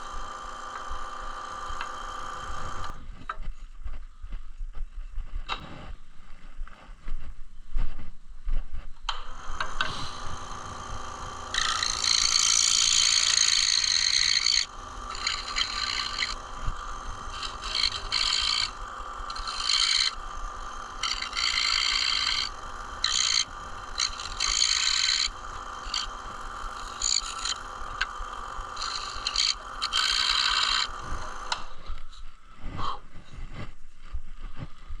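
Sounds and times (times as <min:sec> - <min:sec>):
scroll saw motor running: 0:00.0 - 0:03.0, 0:09.1 - 0:31.7
saw blade rasping through wood: 0:09.4 - 0:31.6.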